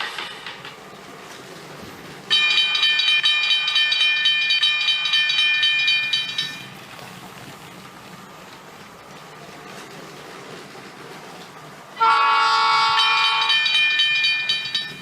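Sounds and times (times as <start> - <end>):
train whistle tone: 12.0 - 13.7
toy train rattling on track: 12.7 - 15.0.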